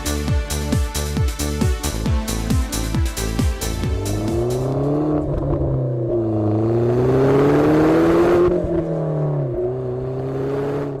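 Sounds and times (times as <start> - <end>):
car engine accelerating: 3.6 - 11.0.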